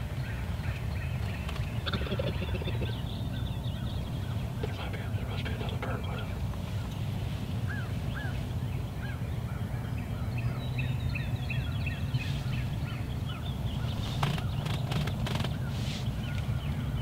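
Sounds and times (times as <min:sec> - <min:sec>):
brief rustle: 0:13.9 - 0:16.5.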